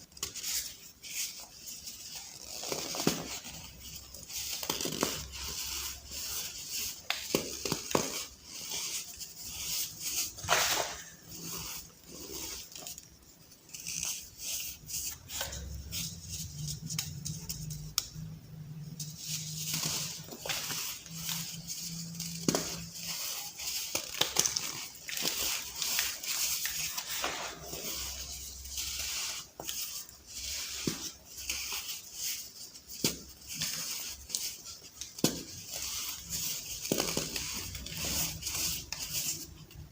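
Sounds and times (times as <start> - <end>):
baking soda balls crunching: 0.0 - 39.9.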